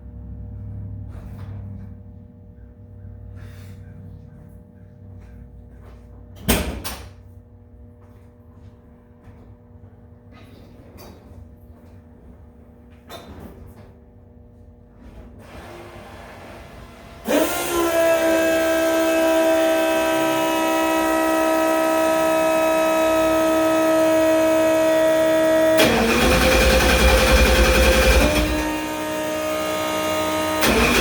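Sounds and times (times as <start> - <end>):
engine low rumble: 0.0 - 6.4.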